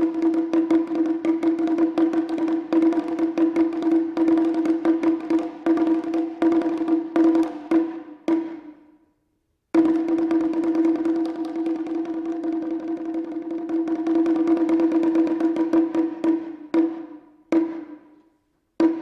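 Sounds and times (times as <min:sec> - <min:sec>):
drum and rim strikes: 0:09.8 - 0:18.2, 0:18.8 - 0:19.0.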